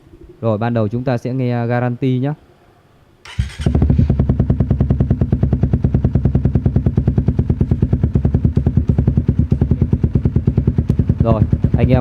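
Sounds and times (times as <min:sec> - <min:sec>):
motorcycle engine idling: 0:03.3 - 0:12.0.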